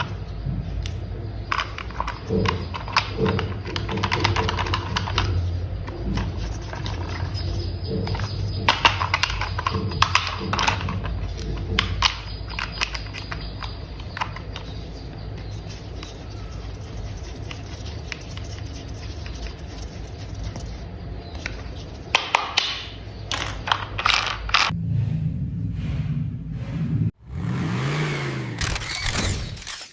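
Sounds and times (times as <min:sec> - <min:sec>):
plastic toy parts clicking: 0:00.0 - 0:20.8, 0:21.4 - 0:24.7
steady low hum: 0:00.0 - 0:28.8.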